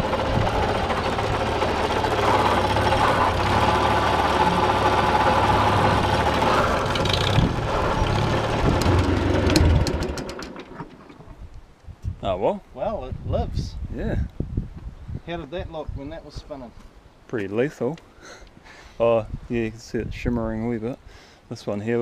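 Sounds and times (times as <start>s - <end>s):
tractor engine running: 0.0s - 11.4s.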